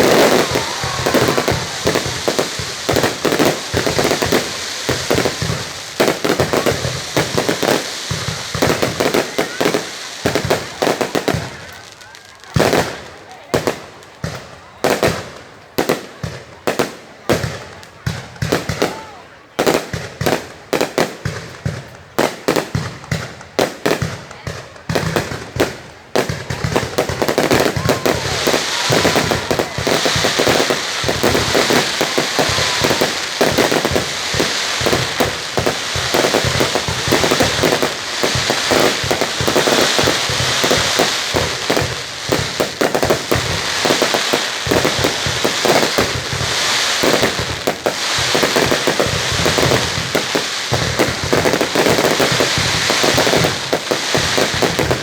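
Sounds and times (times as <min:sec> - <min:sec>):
fireworks bangs and crackle: 0:00.0 - 0:55.0.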